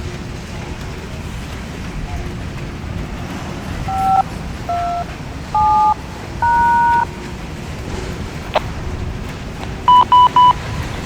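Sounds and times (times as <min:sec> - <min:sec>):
touch-tone beeps over radio: 0:03.9 - 0:07.1, 0:09.9 - 0:10.6.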